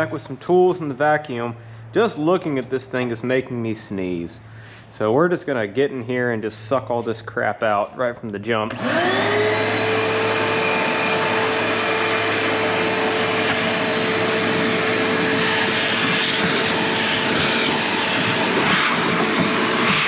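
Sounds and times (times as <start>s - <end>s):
vacuum cleaner running: 8.7s - 20.0s
debris rattling in vacuum: 15.3s - 20.0s.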